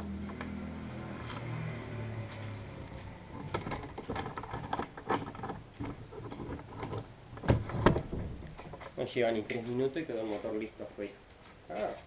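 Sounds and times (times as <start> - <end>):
hardware handling clicks and scrapes: 3.4 - 7.9.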